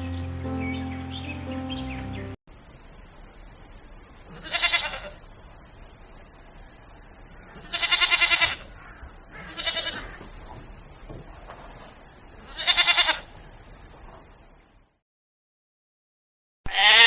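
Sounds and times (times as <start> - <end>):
animal quavering cry: 7.4 - 10.3, 16.7 - 17.0.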